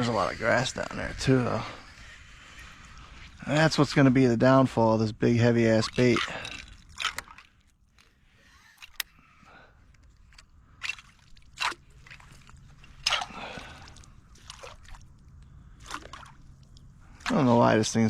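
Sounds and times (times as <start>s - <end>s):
water sloshing and dripping: 5.4s - 18.0s.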